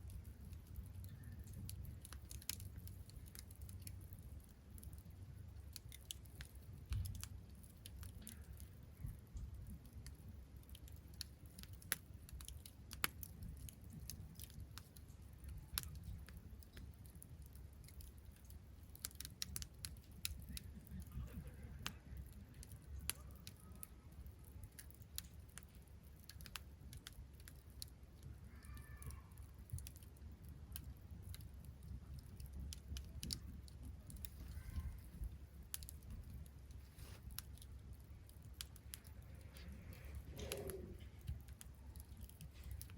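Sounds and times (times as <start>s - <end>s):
low steady rumble: 0.0s - 19.0s
campfire crackling and popping: 0.0s - 42.9s.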